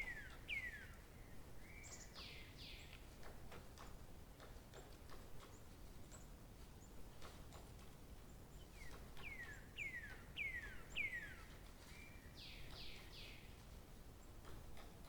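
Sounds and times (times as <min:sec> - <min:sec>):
songbird singing whistled notes: 0:00.0 - 0:01.0, 0:08.6 - 0:13.5.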